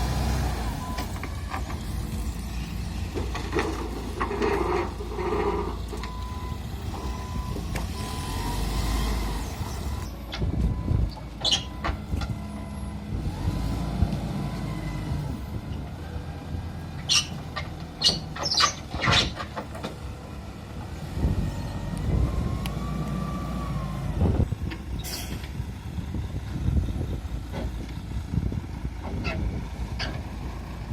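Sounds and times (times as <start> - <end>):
heavy vehicle engine running: 0.0 - 30.9
metallic clanks and squeaks: 0.6 - 8.3, 9.2 - 12.9, 17.0 - 20.0, 24.6 - 25.6, 29.0 - 30.3.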